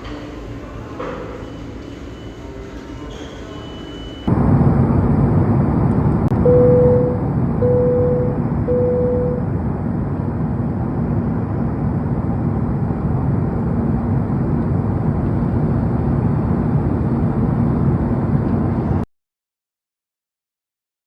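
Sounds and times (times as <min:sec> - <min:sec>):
faint steady hum: 0:04.3 - 0:19.0
vehicle engine rumble: 0:04.3 - 0:19.0.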